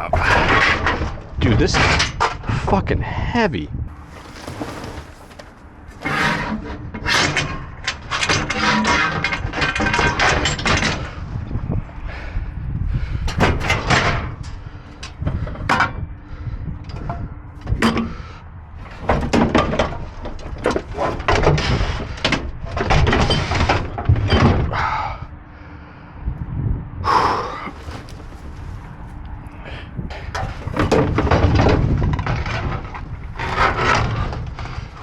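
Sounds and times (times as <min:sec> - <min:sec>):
cord reel dragged: 0:03.9 - 0:07.5, 0:30.4 - 0:35.0
metal junk banging and clattering: 0:03.9 - 0:11.2, 0:13.3 - 0:15.2, 0:27.7 - 0:35.0.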